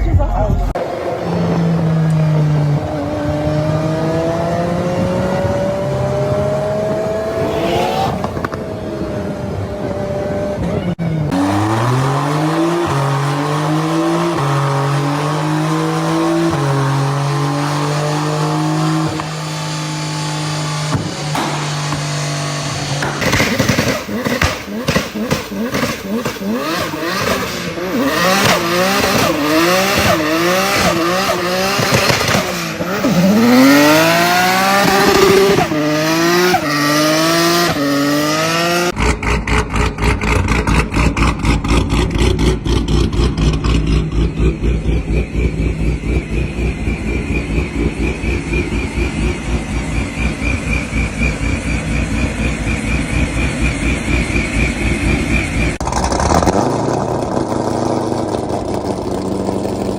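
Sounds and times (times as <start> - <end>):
vehicle engine revving: 0.6 - 59.9
engine running with rapid pulsing: 38.8 - 59.9.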